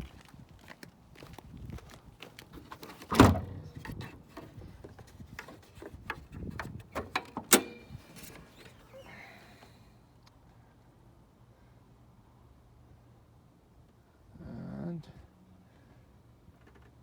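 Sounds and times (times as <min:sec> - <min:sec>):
car hood clunking: 0:03.0 - 0:04.6, 0:06.6 - 0:08.8.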